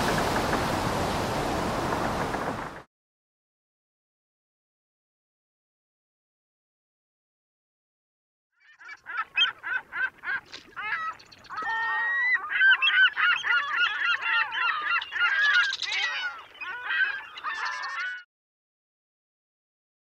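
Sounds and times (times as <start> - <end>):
flock of birds calling: 8.6 - 18.3.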